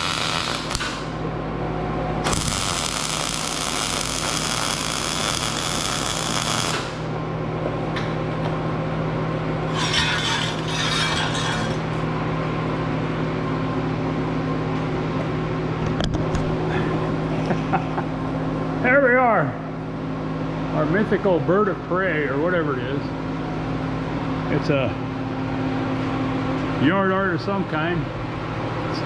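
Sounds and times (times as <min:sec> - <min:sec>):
high-speed power tool whining: 0:00.0 - 0:01.0, 0:02.3 - 0:07.0
harsh noisy work on metal: 0:00.0 - 0:01.3, 0:02.2 - 0:07.2, 0:09.6 - 0:12.2
steady low hum: 0:00.0 - 0:29.0.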